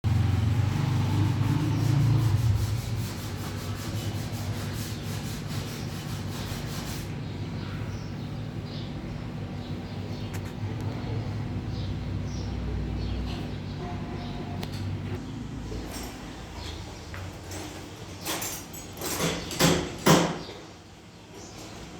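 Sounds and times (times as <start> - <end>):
sanding car paint: 0.1 - 7.2.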